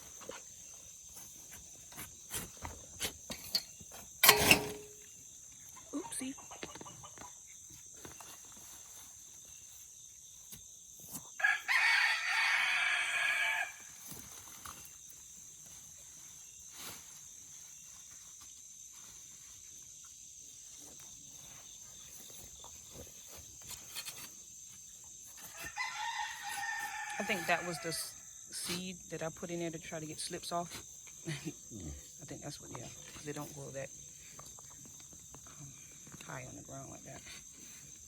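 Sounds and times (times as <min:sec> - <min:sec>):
rooster crowing: 0:11.4 - 0:13.9, 0:25.5 - 0:28.2
faint ticks and scrapes: 0:13.8 - 0:38.0.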